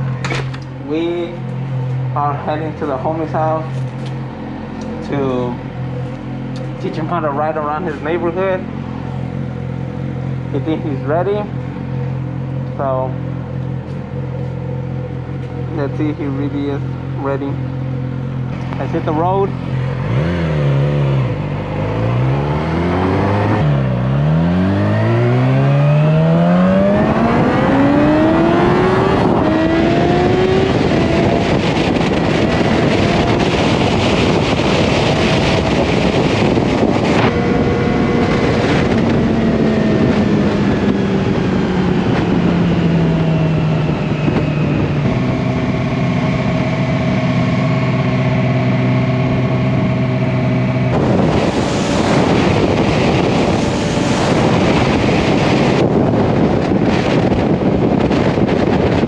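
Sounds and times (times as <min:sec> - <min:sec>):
motorcycle engine accelerating: 0:00.0 - 0:59.0
wind rushing: 0:21.4 - 0:59.0.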